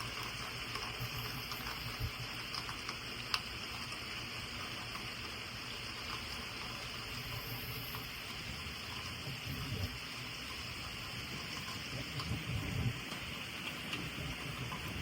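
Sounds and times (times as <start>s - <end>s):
heavy rain pouring: 8.8s - 15.0s.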